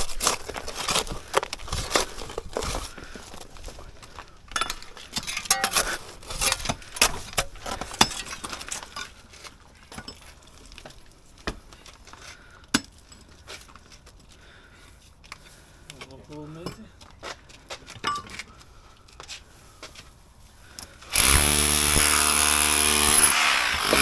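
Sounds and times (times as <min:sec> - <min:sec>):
hard objects clinking: 0:00.0 - 0:06.9.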